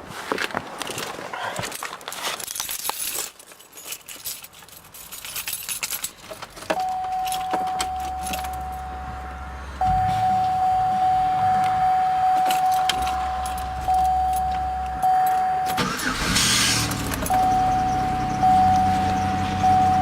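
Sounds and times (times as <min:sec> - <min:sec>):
keys jangling and clicking: 0:01.5 - 0:08.8, 0:12.3 - 0:16.2, 0:16.8 - 0:19.7
car engine cranking and starting: 0:06.7 - 0:20.0
car warning chime: 0:06.8 - 0:20.0.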